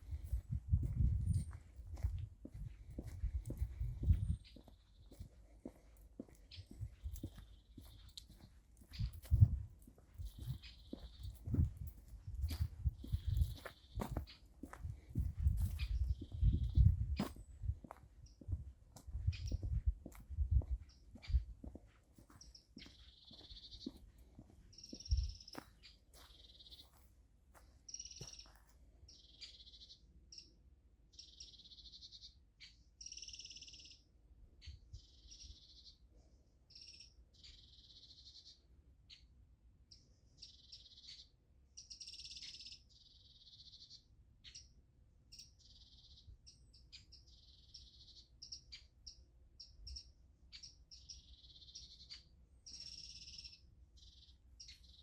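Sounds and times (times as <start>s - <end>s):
faint low rumble: 0.0s - 29.4s.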